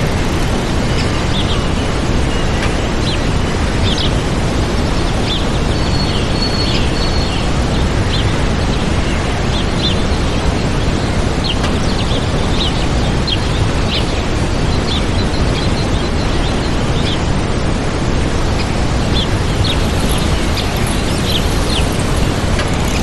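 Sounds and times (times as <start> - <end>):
waterfall rushing: 17.3 - 23.0
small birds chirping: 18.4 - 23.0.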